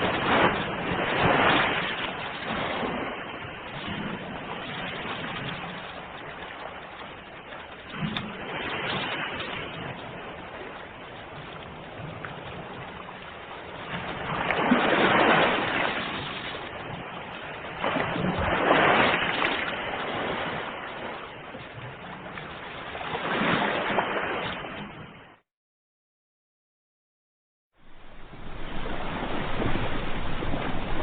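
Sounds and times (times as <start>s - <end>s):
ocean waves breaking: 0.0s - 25.4s, 27.8s - 31.0s.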